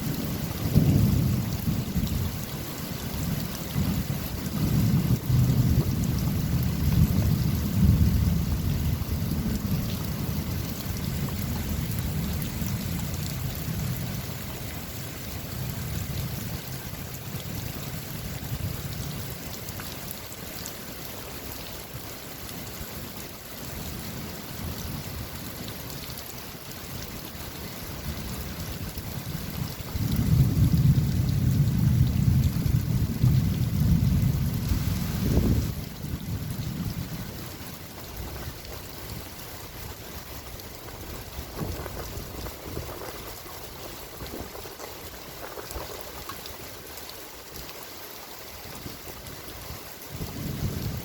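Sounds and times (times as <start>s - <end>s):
thunder rumbling: 0.0s - 2.5s, 3.1s - 14.4s, 28.8s - 39.2s, 40.7s - 46.2s, 50.2s - 51.0s
steady rain: 0.0s - 51.0s.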